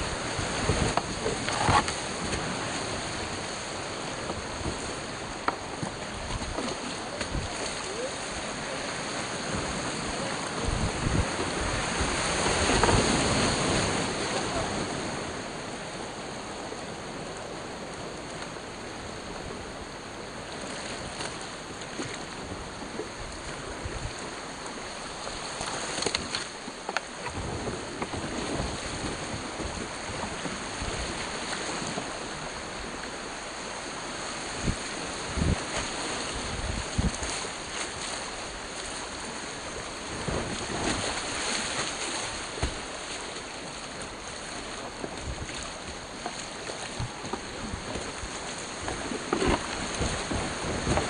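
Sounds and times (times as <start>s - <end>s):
river water rushing and splashing: 0.0s - 51.0s
kayak knocks: 0.3s - 3.1s, 4.0s - 8.0s, 9.5s - 14.4s, 40.2s - 51.0s.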